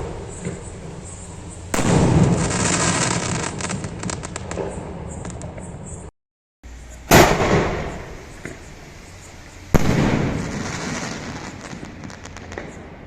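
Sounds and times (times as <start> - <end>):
hiss: 6.7 - 12.8
firework shell bursting: 7.1 - 8.9, 9.7 - 12.8.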